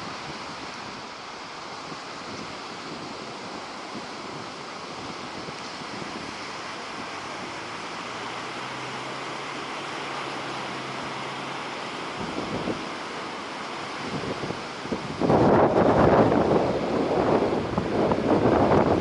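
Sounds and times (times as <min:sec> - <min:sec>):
surf breaking on beach: 0:00.0 - 0:19.0
wind buffeting microphone: 0:00.0 - 0:19.0.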